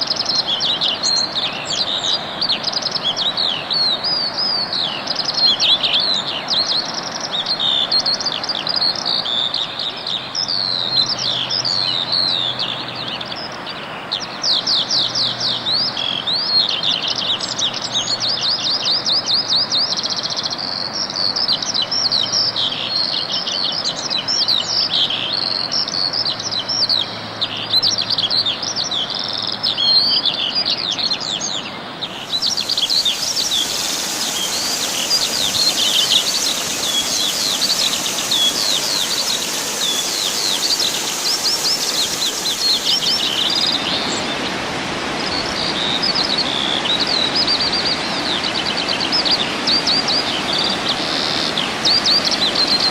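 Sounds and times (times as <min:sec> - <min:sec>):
birds chirping and trilling: 0:21.4 - 0:44.6
steady high hiss: 0:31.9 - 0:46.4.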